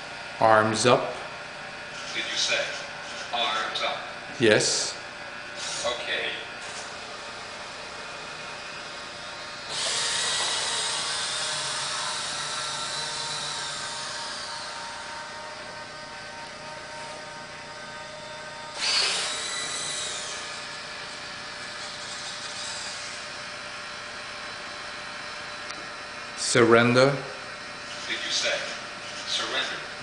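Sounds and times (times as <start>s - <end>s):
robot servo motors whining: 1.9s - 3.9s, 5.6s - 23.6s, 27.8s - 30.0s.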